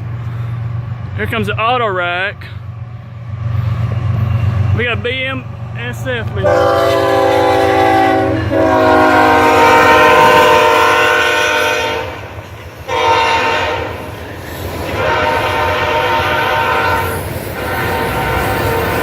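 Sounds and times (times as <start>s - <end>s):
passing train rumble: 0.0s - 19.0s
locomotive air horn blasts: 6.4s - 12.3s, 12.9s - 14.1s, 14.9s - 19.0s.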